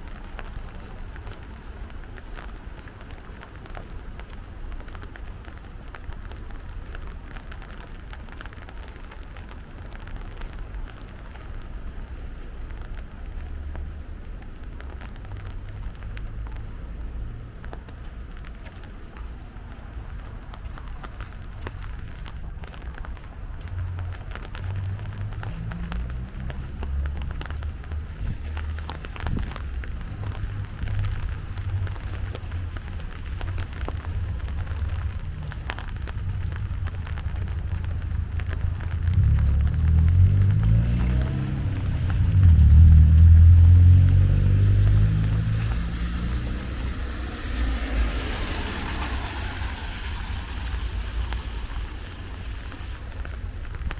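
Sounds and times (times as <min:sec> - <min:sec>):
sharp drops and drips: 0:00.0 - 0:53.9
steady rain falling: 0:00.0 - 0:53.9
low rumble: 0:21.5 - 0:53.9.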